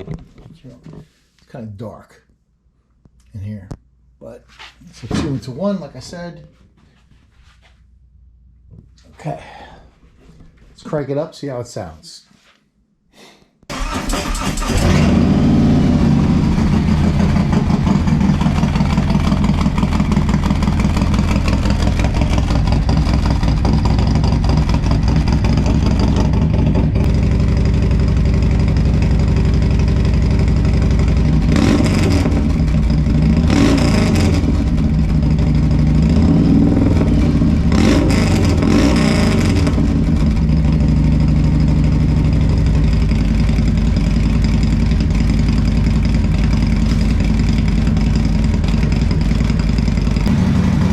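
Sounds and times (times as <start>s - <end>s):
motorcycle engine idling: 15.3s - 31.5s, 32.3s - 33.5s, 34.6s - 36.1s, 39.8s - 50.9s.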